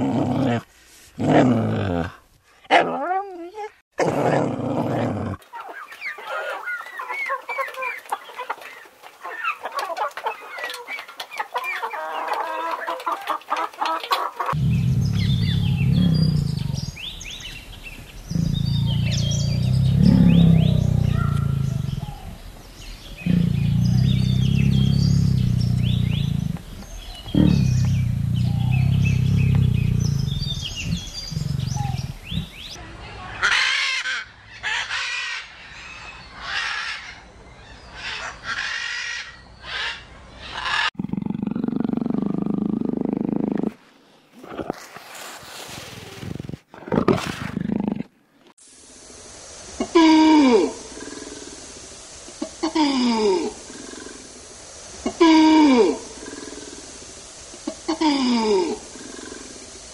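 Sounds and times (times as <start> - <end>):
chickens clucking: 5.4 - 14.6
small birds chirping: 5.5 - 33.4
tiger growling: 14.5 - 32.8, 41.0 - 43.8, 50.9 - 51.6, 53.6 - 54.3, 56.0 - 57.0, 58.9 - 59.7.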